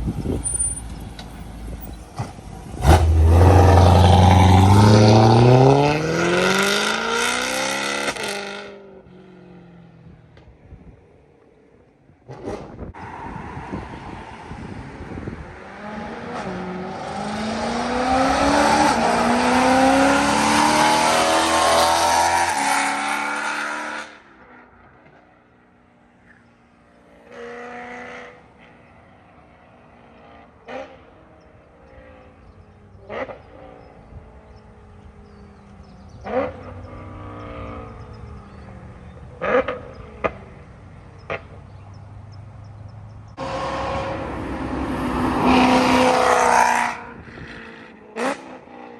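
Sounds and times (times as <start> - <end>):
car engine accelerating hard: 2.2 - 8.7, 43.3 - 48.9.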